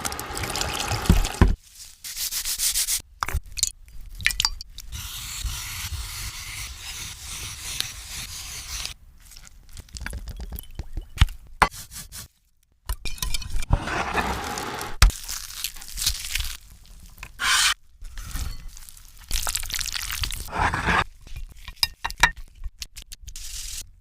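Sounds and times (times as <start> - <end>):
scraping and rubbing strokes: 5.0 - 9.0, 17.4 - 18.5, 20.5 - 21.1.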